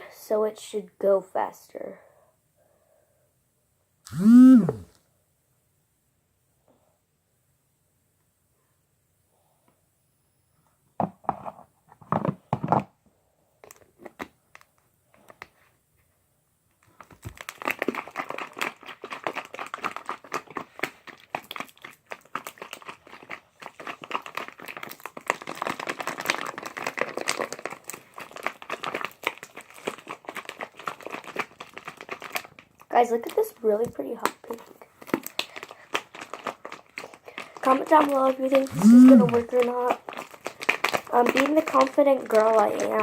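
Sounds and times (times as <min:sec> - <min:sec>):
plastic bottle crinkling: 0:16.8 - 0:43.0.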